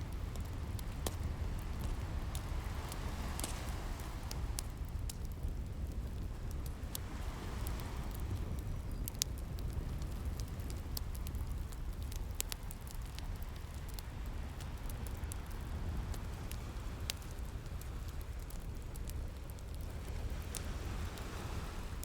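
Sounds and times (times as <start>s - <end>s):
wood fire crackling: 0.0s - 22.0s
sea waves rumbling: 0.2s - 4.8s, 20.0s - 22.0s.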